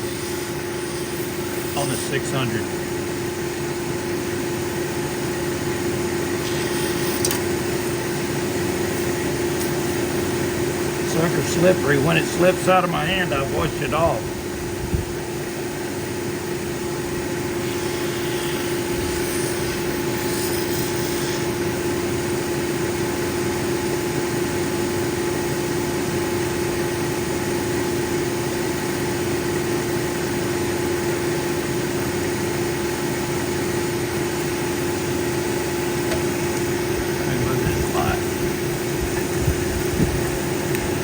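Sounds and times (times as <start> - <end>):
wet grinding wheel: 0.0 - 3.5, 6.2 - 13.6, 17.2 - 23.1
motor hum: 0.0 - 41.0.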